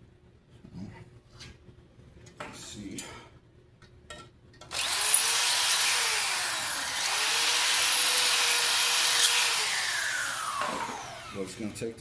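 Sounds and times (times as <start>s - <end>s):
power drill on steel: 4.7s - 11.8s.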